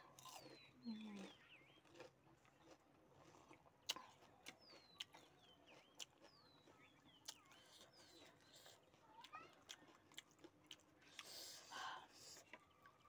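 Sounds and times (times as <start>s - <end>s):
faint birdsong chirps: 0.0s - 2.8s, 3.8s - 9.5s
eating clicks: 0.1s - 13.0s.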